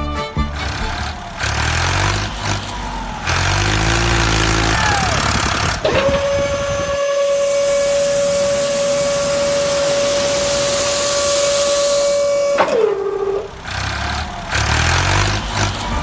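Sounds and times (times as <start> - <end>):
engine rumbling hum: 0.0 - 16.0
high whistling tone: 2.7 - 13.6
hiss: 6.3 - 13.8.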